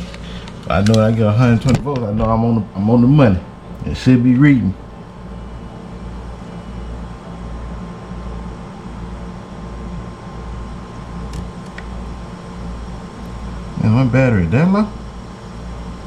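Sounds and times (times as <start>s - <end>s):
low mechanical hum: 0.0s - 16.0s
faint high steady tone: 0.8s - 11.3s.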